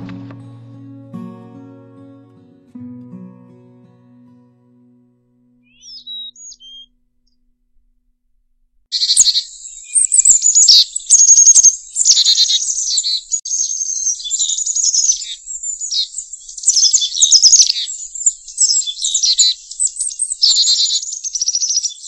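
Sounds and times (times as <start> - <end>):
songbird singing trills and chirps: 5.6 - 6.9, 8.9 - 22.0.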